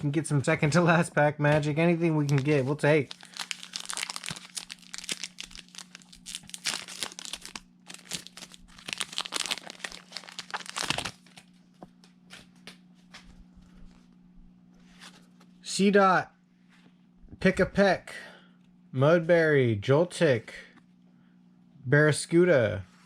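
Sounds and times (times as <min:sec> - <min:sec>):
foil wrapper tearing and crinkling: 0:02.2 - 0:11.6.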